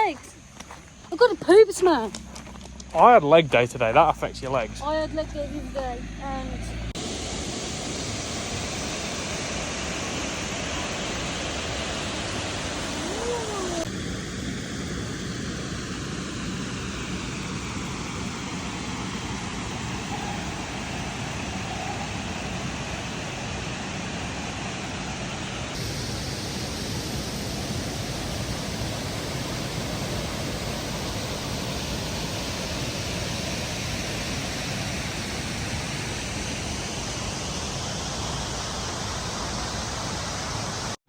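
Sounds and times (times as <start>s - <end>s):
waterfall roaring: 3.0s - 14.0s, 15.8s - 41.0s.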